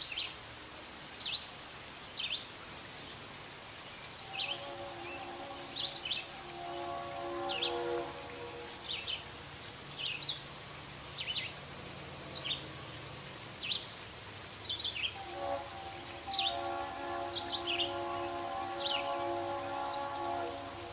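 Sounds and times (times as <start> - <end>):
distant locomotive horn: 4.0 - 10.3, 15.0 - 20.9
bird chirping: 14.6 - 20.4.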